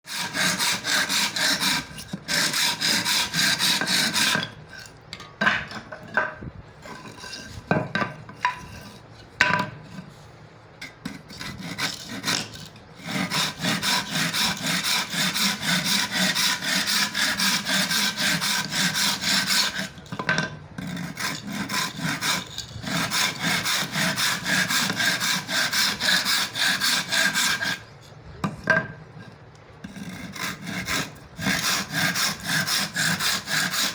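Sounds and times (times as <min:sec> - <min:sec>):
hand saw cutting wood: 0:00.1 - 0:04.9, 0:11.0 - 0:20.1, 0:20.8 - 0:27.9, 0:29.8 - 0:33.9.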